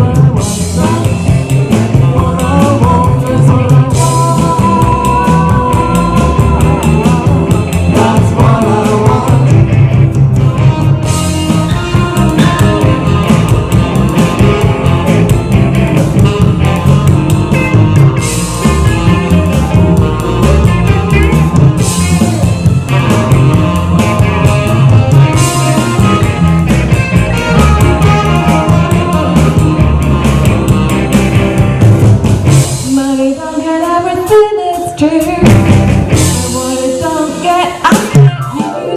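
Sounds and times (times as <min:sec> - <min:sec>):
live rock band playing: 0:00.0 - 0:38.9
sliding guitar notes: 0:04.0 - 0:32.2.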